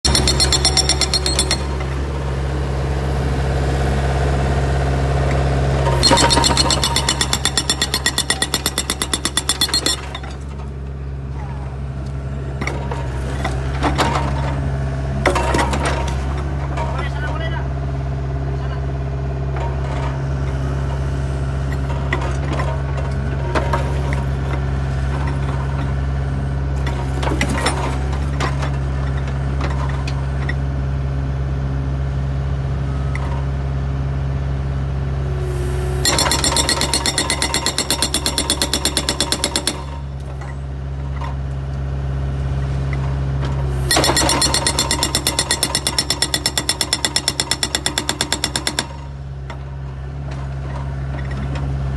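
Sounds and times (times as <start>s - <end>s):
hydraulic breaker hammering: 0.0s - 2.0s, 6.0s - 10.5s, 36.0s - 40.4s, 43.9s - 49.2s
diesel engine running: 0.0s - 51.9s
metal knocks and clanks: 0.1s - 2.0s, 6.0s - 10.6s, 36.1s - 40.5s, 43.9s - 49.0s.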